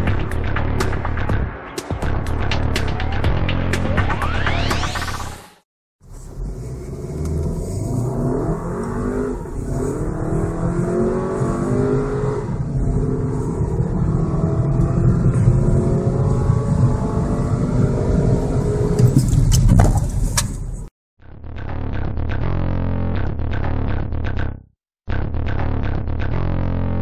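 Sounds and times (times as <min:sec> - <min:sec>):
car engine accelerating hard: 0:06.0 - 0:19.6.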